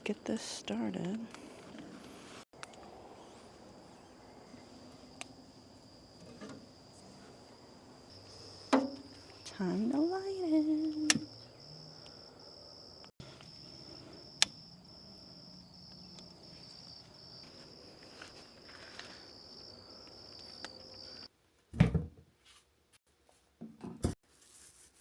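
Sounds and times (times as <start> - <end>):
crickets chirring: 2.0 - 21.3.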